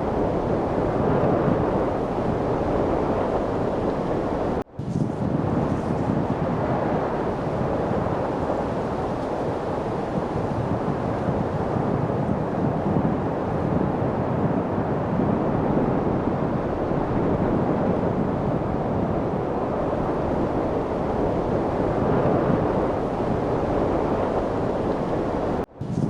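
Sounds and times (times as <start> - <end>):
wind rushing: 0.0 - 26.0.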